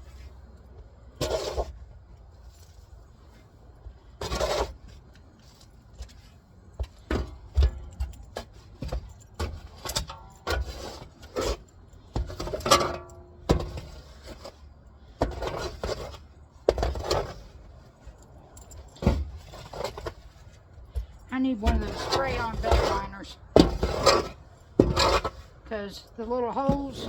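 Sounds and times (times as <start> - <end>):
scrapes and knocks in sawdust: 1.2 - 1.8, 4.1 - 7.4, 15.2 - 17.6, 19.0 - 25.6.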